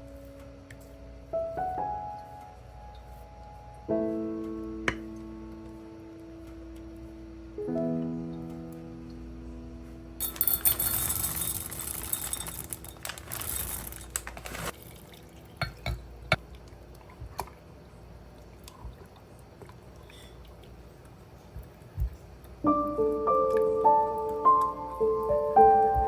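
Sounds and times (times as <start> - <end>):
kitchenware clinking: 10.2 - 14.8, 15.6 - 16.4
liquid pouring: 10.2 - 20.8.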